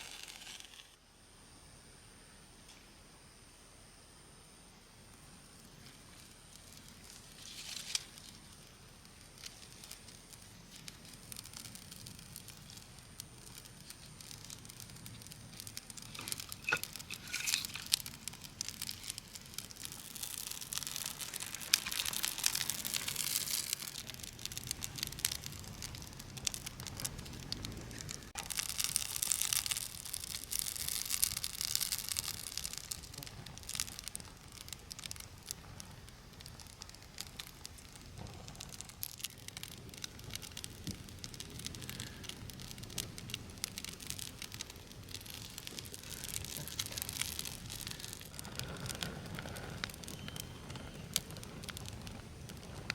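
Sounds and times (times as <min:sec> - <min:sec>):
campfire crackling and hissing: 0:00.0 - 0:52.9.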